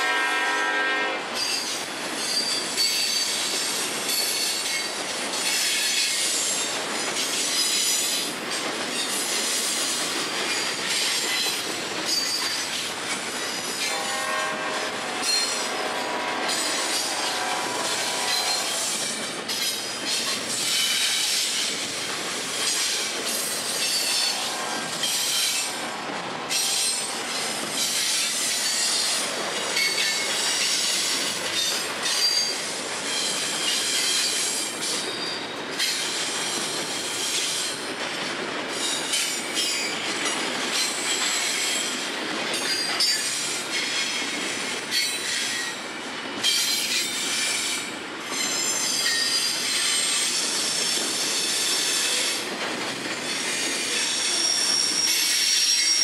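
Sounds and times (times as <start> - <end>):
steel wheels clattering on rail: 0.0 - 56.0
high-pitched wheel squeals: 53.4 - 56.0.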